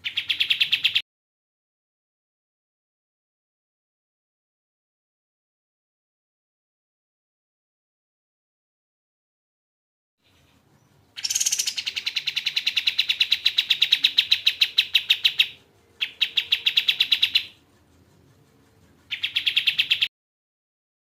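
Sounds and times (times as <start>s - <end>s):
bird singing piercing notes: 10.3s - 17.6s, 19.1s - 20.1s.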